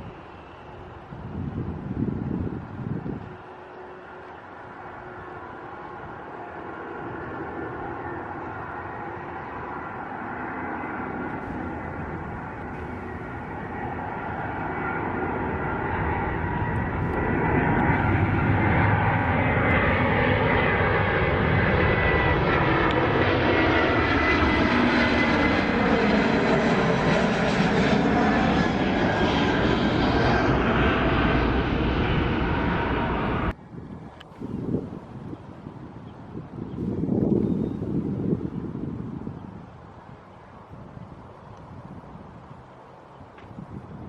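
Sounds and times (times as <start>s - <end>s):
jet airliner flying overhead: 0.0s - 44.0s
high whine: 11.2s - 24.0s.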